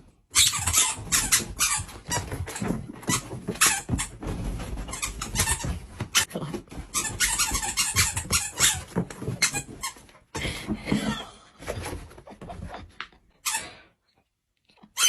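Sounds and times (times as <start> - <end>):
rapid sharp squeaks: 0.3 - 6.3, 6.9 - 10.0.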